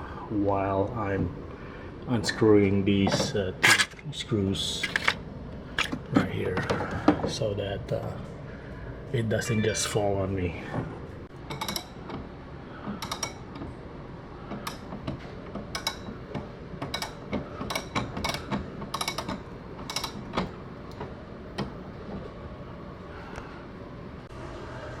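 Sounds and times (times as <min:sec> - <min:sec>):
metallic clicks and creaks of screws: 0:12.9 - 0:13.7, 0:14.5 - 0:21.0.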